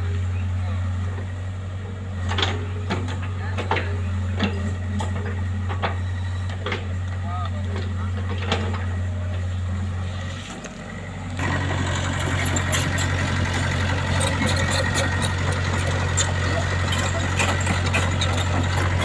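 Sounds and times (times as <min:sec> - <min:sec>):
engine running: 0:00.0 - 0:19.0
rattling clattering noise: 0:11.4 - 0:19.0.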